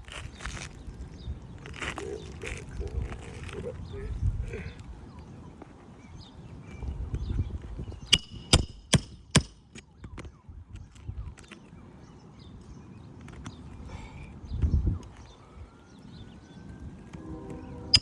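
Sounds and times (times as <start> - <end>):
hammer striking nail: 8.1 - 9.8.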